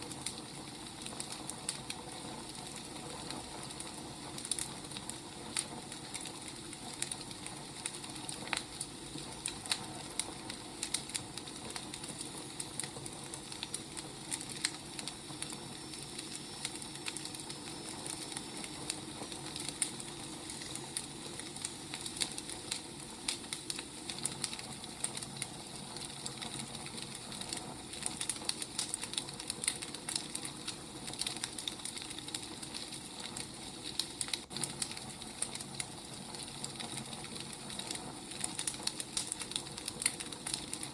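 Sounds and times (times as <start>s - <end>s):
firewood crackling: 0.0s - 40.9s.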